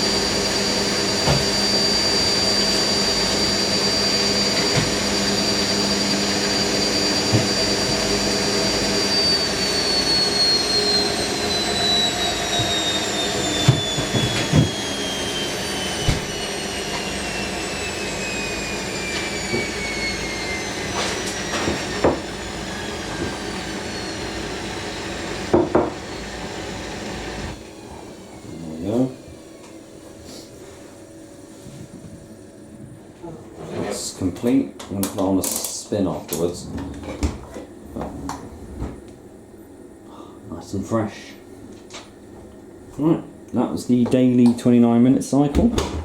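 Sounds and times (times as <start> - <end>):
washing machine spin whine: 0.0 - 46.0
knocks in washing machine: 45.5 - 46.0.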